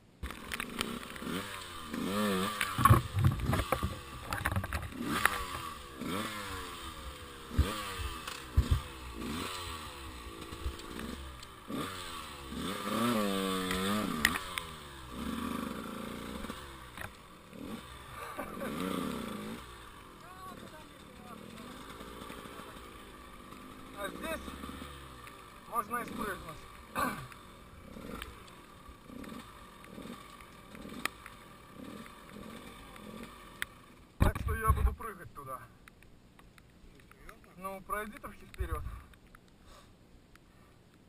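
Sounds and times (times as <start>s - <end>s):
motorcycle engine revving: 0.2s - 35.2s
sharp thumps and knocks: 2.6s - 5.7s, 8.5s - 8.9s, 34.2s - 35.0s.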